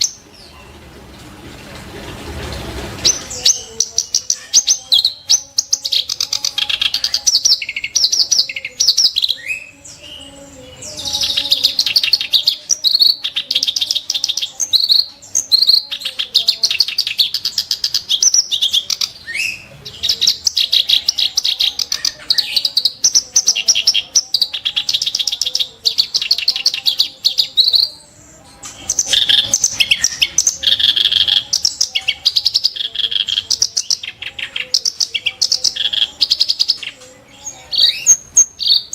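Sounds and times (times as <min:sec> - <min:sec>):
warbler harsh chattering song: 0:00.0 - 0:00.8, 0:02.4 - 0:38.9.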